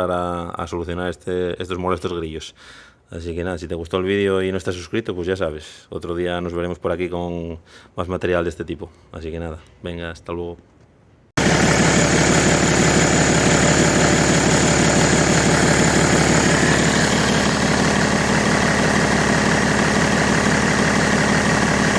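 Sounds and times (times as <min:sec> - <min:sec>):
car engine idling: 0:11.4 - 0:21.9.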